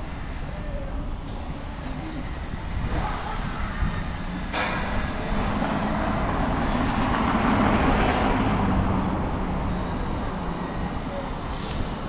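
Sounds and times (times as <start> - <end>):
vehicle driving past: 4.7 - 11.0.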